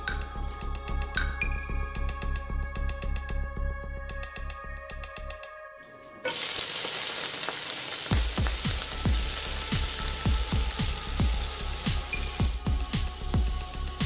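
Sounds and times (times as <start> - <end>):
food sizzling in hot oil: 6.3 - 14.0
electronic music beat: 8.1 - 14.0.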